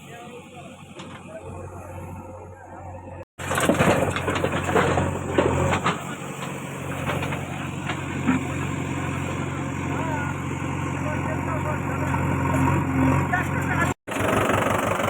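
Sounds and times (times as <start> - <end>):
diesel engine running: 0.0 - 15.0
clatter and knocks: 3.4 - 8.8.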